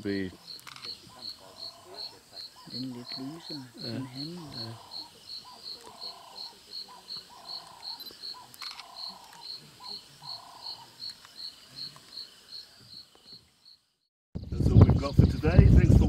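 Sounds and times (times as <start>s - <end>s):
cricket chirping: 0.0s - 14.1s
lower repeating call: 0.4s - 11.0s.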